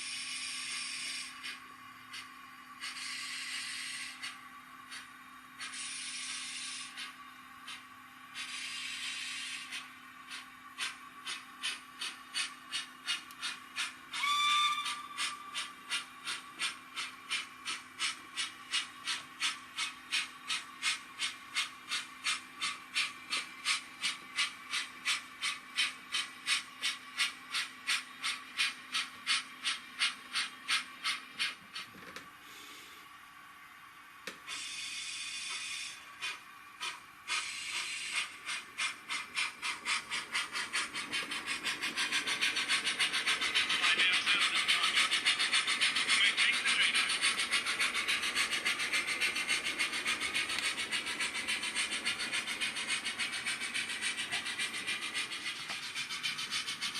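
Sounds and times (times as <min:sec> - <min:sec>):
model steam engine chuffs: 0:00.0 - 0:56.9
steam hiss: 0:05.6 - 0:07.1, 0:34.4 - 0:56.9
whistle toot: 0:14.2 - 0:15.2.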